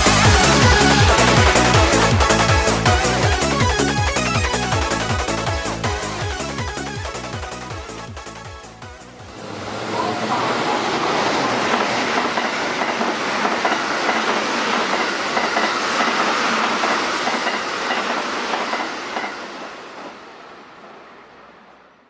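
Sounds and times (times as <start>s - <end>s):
train wheels clattering on rails: 10.2s - 21.0s.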